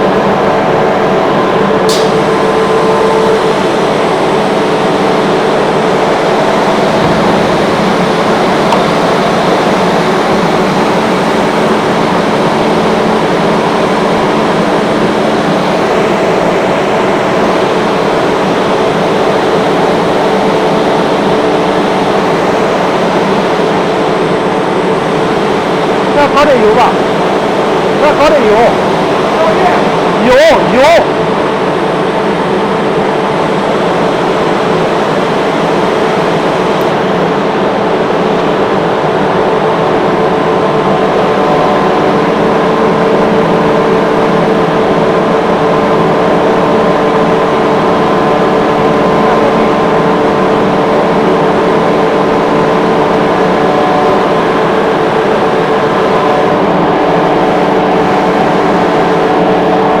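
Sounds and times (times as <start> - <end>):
whining tones: 0.0 - 31.5
air compressor humming: 0.0 - 60.0.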